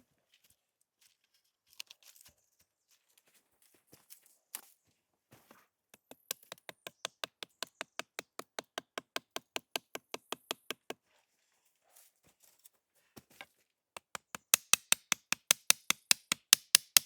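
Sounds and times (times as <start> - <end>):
rapid sharp knocks: 14.0 - 17.0.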